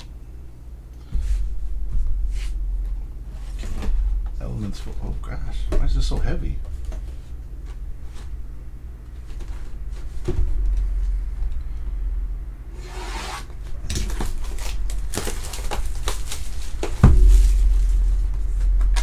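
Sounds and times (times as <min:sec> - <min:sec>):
steady low rumble: 0:00.0 - 0:12.8, 0:15.8 - 0:19.0
hands tearing cardboard wrapping: 0:13.0 - 0:19.0
loud knock: 0:17.0 - 0:19.0.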